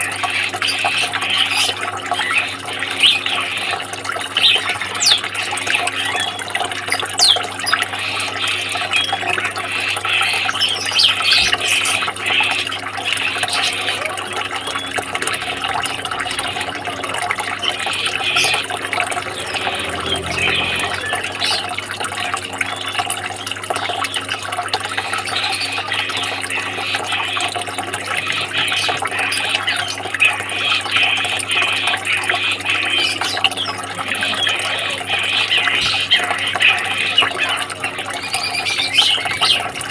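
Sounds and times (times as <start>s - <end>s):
water running and splashing: 0.0s - 39.9s
steady low hum: 14.2s - 22.6s.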